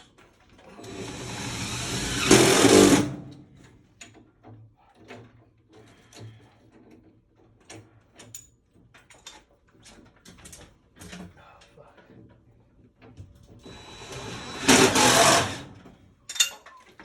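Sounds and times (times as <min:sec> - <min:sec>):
tools clicking and knocking: 0:16.3 - 0:17.0.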